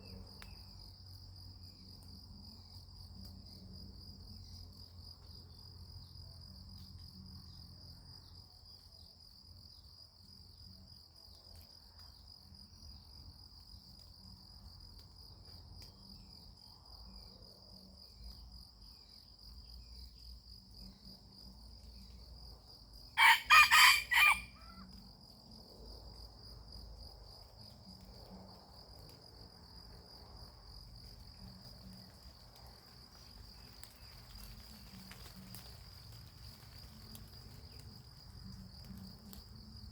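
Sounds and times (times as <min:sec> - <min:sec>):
rooster crowing: 0:23.2 - 0:24.8.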